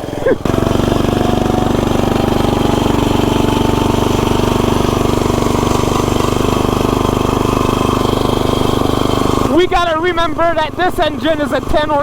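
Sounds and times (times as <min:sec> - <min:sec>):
lawnmower engine running: 0:00.0 - 0:12.0
noisy drive chain: 0:00.0 - 0:12.0.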